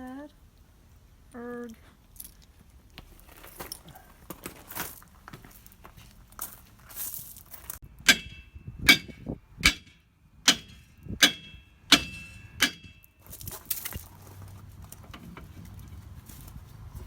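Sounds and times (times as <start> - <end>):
hammer blows on metal: 8.0 - 13.1.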